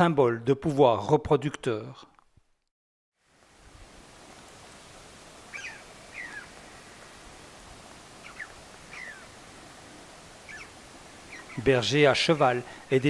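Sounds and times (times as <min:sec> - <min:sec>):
faint outdoor hiss: 0:03.2 - 0:13.0
bird chirping: 0:05.5 - 0:06.8, 0:08.2 - 0:09.4, 0:10.4 - 0:12.4.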